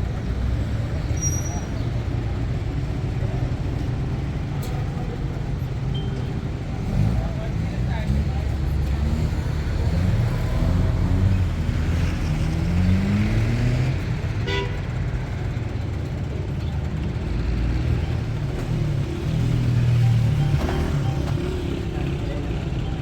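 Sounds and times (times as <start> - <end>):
car horn toot: 14.4 - 14.9
car engine accelerating: 17.5 - 23.0.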